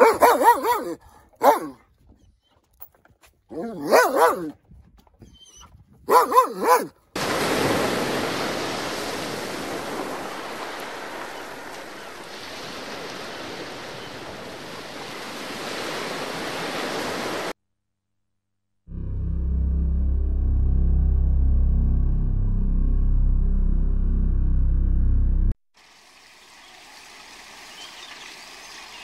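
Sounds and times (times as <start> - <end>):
dog barking: 0.0 - 1.8, 3.5 - 4.6, 6.1 - 7.0.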